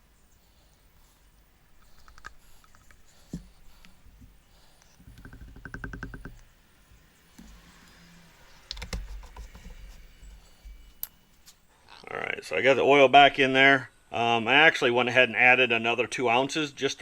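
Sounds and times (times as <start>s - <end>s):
clicks and taps of handling parts: 1.8s - 6.5s.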